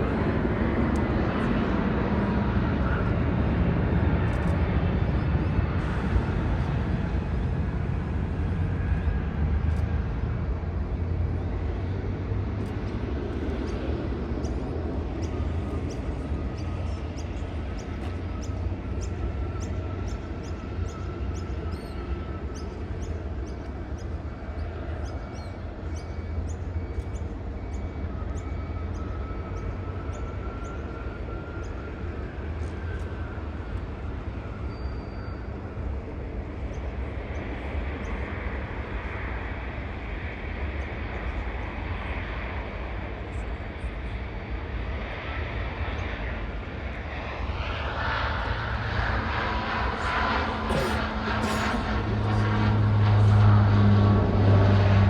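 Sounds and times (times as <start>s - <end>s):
distant jet engines rumbling: 0.0s - 55.0s.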